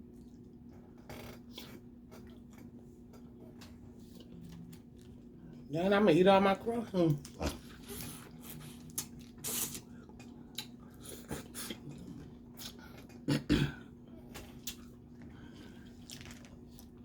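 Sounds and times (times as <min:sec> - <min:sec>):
faint steady hum: 0:00.0 - 0:17.0
sucking and chewing: 0:07.2 - 0:13.3, 0:14.3 - 0:17.0.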